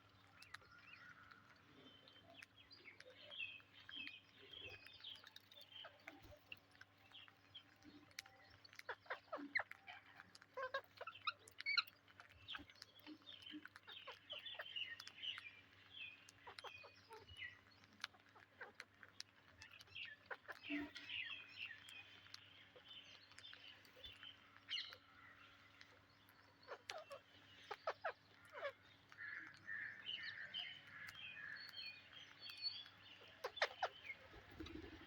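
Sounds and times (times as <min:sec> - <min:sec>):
parakeets chirping: 0:08.7 - 0:12.8, 0:13.4 - 0:15.4, 0:26.7 - 0:28.8, 0:32.5 - 0:35.0.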